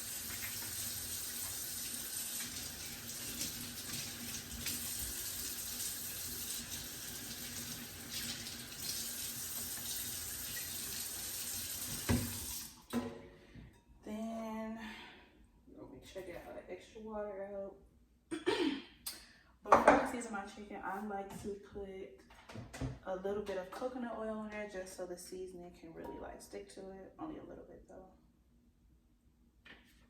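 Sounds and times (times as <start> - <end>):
tap running into sink: 11.8 - 13.2.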